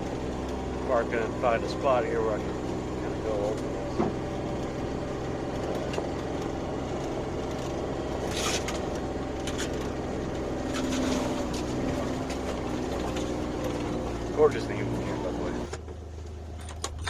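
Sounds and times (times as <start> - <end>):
utility vehicle engine running: 0.0 - 17.0.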